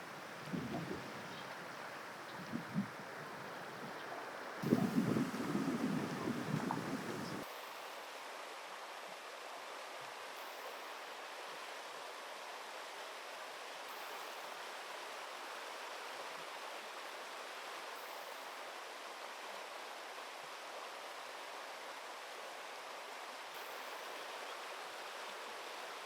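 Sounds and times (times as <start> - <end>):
river water rushing: 0.0 - 7.5.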